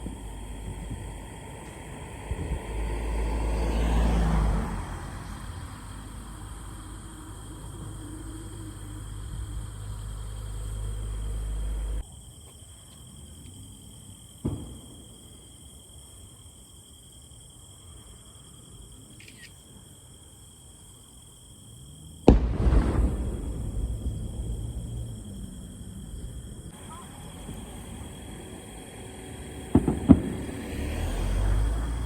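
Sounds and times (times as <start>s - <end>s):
fireworks bursting: 0.0s - 2.6s, 14.4s - 15.4s, 22.2s - 32.0s
low rumble: 5.8s - 12.0s, 22.3s - 30.6s.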